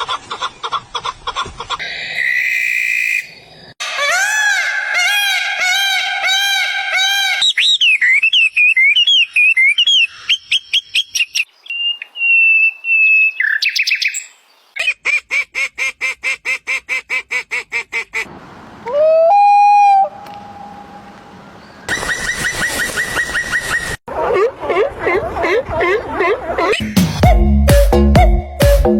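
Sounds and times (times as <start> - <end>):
rising and falling bird calls: 1.3 - 15.1, 18.8 - 27.0
warbling bird song: 1.8 - 15.1, 18.9 - 24.0.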